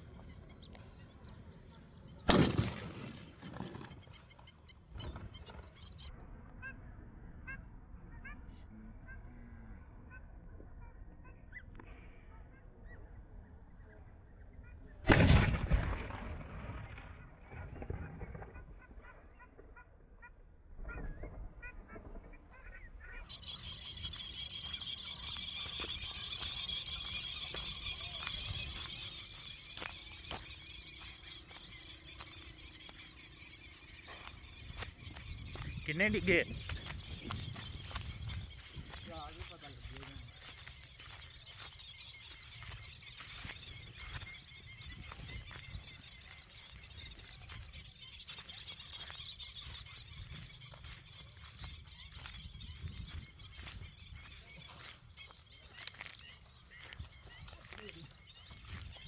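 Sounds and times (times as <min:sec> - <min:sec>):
birds chirping: 0:00.0 - 0:15.0, 0:20.9 - 0:59.0.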